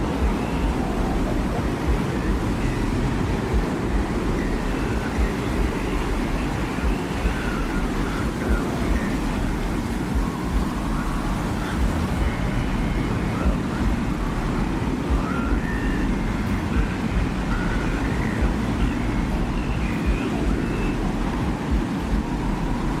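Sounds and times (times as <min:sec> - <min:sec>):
low wind rumble: 0:00.0 - 0:23.0.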